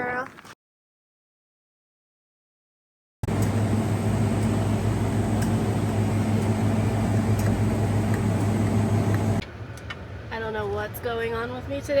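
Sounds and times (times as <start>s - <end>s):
vehicle engine running: 3.2s - 9.4s.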